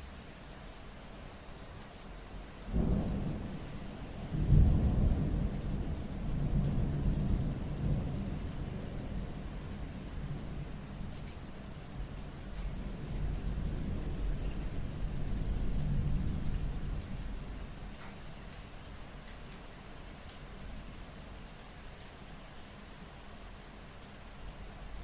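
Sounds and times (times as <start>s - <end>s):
steady rain: 0.0s - 25.0s
thunder rumbling: 2.7s - 11.2s.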